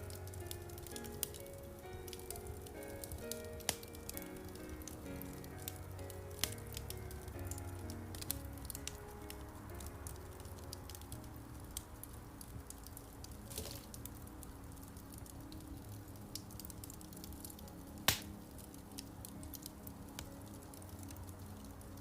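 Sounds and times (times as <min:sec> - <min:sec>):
fire hissing: 0:00.0 - 0:22.0
soft piano music: 0:00.0 - 0:22.0
wood fire crackling and popping: 0:00.0 - 0:22.0.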